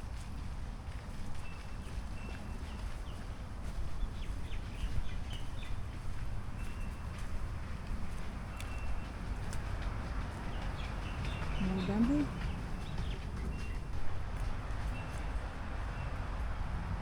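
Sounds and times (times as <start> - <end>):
low outdoor rumble: 7.4 - 15.0
birds chirping: 8.0 - 14.0.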